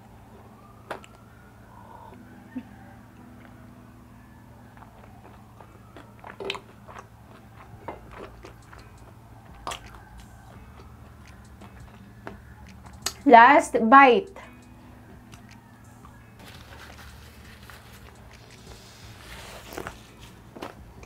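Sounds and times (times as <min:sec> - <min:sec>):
person chewing fried chicken: 0:04.5 - 0:13.1, 0:16.4 - 0:20.0.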